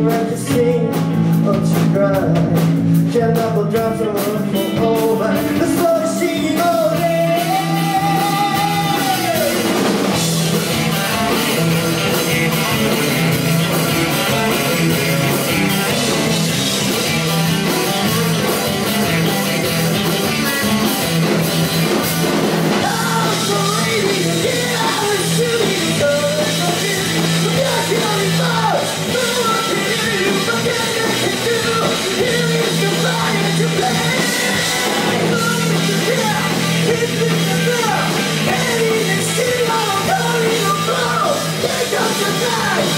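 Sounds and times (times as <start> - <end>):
person singing: 0.0 - 9.8, 22.7 - 42.9
bass guitar: 0.0 - 42.9
drum kit: 0.0 - 42.9
electric guitar: 0.0 - 42.9.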